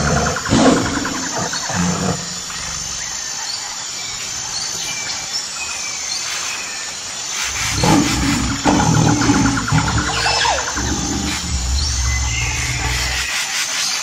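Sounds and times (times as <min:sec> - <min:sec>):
tiger roaring: 0:00.0 - 0:03.3, 0:07.4 - 0:13.4
steady hiss: 0:00.7 - 0:14.0.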